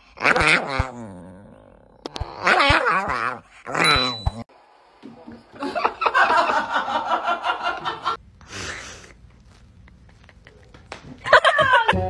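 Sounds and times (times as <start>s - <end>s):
person laughing: 5.5s - 9.2s, 9.8s - 12.0s
breathy intake: 8.4s - 9.2s.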